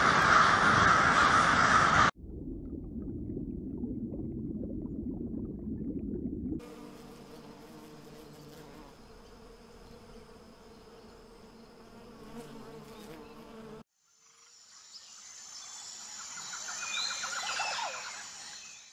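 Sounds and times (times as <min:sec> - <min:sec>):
bee buzzing: 0:06.6 - 0:13.9.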